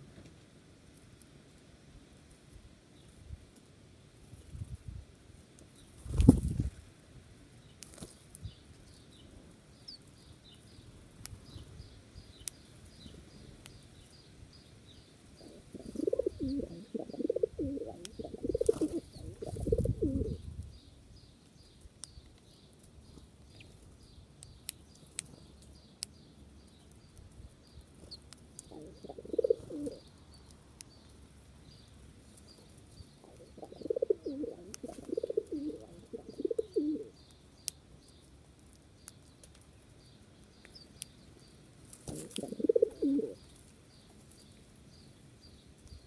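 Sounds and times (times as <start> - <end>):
wings fluttering: 5.9 - 6.8, 7.8 - 8.3, 15.6 - 20.4, 33.3 - 37.0, 41.9 - 43.3
small bird chirping: 7.6 - 46.0
dove cooing: 15.4 - 20.4, 28.7 - 30.0, 33.2 - 37.1, 42.1 - 43.4.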